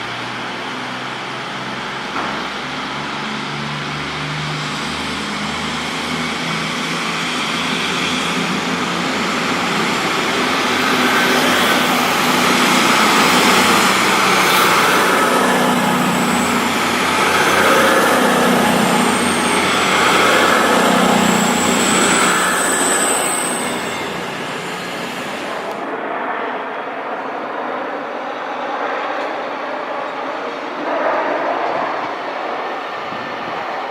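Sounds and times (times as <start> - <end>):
train rumble: 0.0 - 26.3, 28.4 - 33.9
thin high squeal: 17.2 - 25.4.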